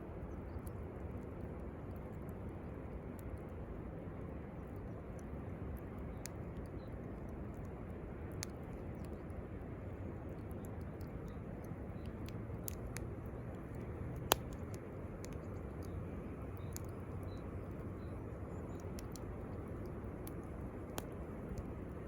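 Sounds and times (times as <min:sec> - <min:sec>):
campfire crackling: 0:00.0 - 0:22.0.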